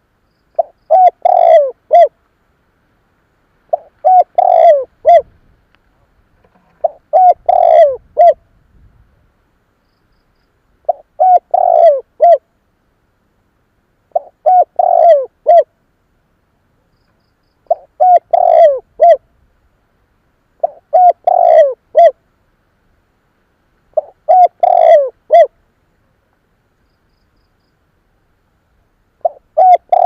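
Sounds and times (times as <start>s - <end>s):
dove cooing: 0.6s - 2.2s, 3.7s - 5.4s, 6.6s - 8.4s, 10.8s - 12.5s, 14.1s - 15.7s, 17.7s - 19.3s, 20.6s - 22.2s, 23.9s - 25.6s, 29.2s - 30.0s.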